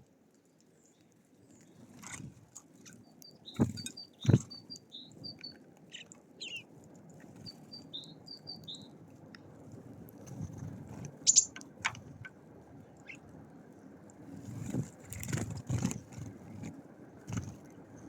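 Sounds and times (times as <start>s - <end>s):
small songbirds calling: 3.0s - 9.0s, 11.2s - 12.3s, 13.0s - 13.3s
loud high bird chirp: 3.4s - 6.6s, 7.5s - 8.9s, 11.3s - 11.6s.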